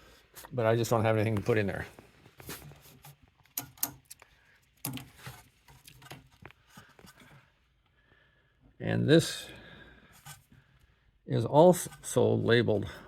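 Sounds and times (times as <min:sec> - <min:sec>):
connectors clicking and rattling: 0:02.3 - 0:07.3.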